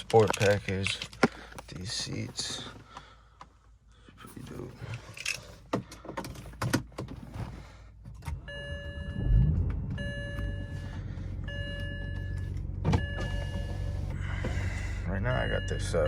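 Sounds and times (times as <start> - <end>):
car engine starting and idling: 8.1 - 16.0
dashboard warning chime: 8.4 - 16.0.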